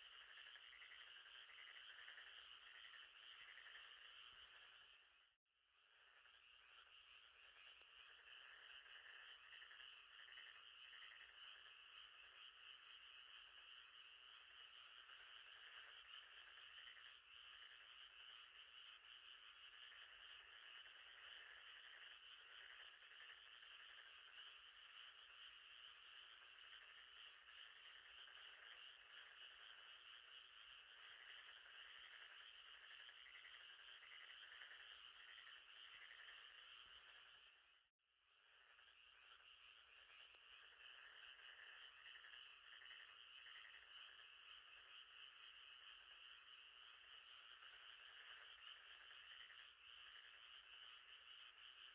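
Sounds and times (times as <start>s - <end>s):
frogs and insects night chorus: 0.0s - 51.9s.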